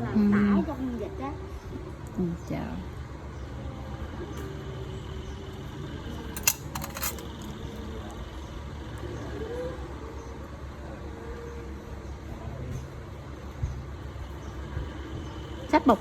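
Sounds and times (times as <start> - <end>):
steel tools clinking: 6.3 - 7.5.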